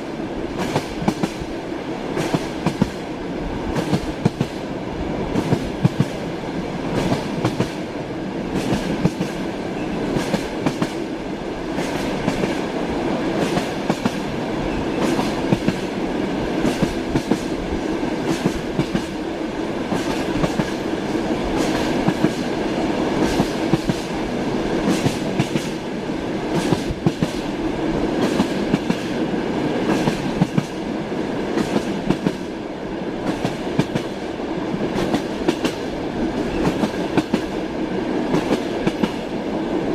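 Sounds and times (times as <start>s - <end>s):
train rumbling on rails: 0.0s - 39.9s.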